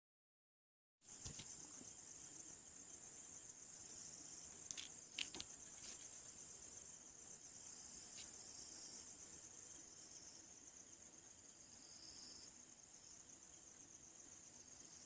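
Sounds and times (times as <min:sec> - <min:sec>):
high-pitched insect chirring: 0:01.9 - 0:15.0.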